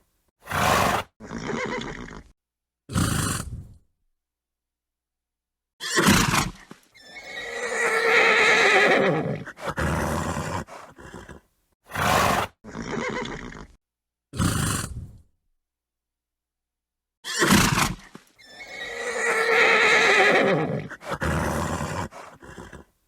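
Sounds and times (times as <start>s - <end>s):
horse snorts: 0.4s - 2.3s, 2.9s - 3.8s, 5.8s - 15.3s, 17.2s - 22.9s
horse whinnying: 0.5s - 2.3s, 5.8s - 13.8s, 17.2s - 22.9s.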